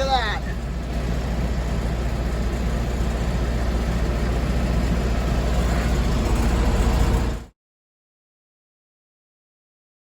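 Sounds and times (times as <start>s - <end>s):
tractor engine drone: 0.0s - 7.5s.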